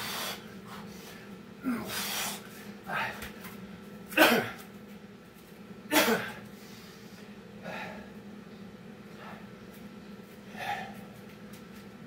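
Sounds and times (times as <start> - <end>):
man breathing hard: 0.0 - 3.2, 6.5 - 8.2, 10.4 - 11.1
faint steady hum: 0.0 - 12.0.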